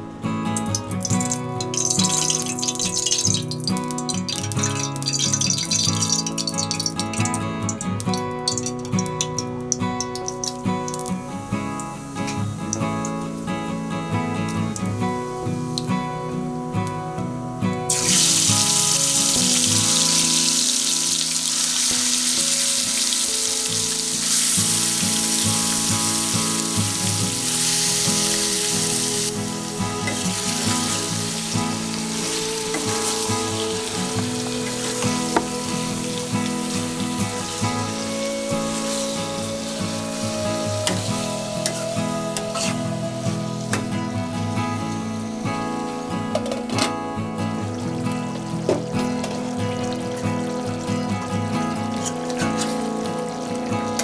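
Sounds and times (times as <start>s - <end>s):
background music: 0.0s - 54.0s
food sizzling in hot oil: 0.7s - 13.1s, 17.9s - 43.7s.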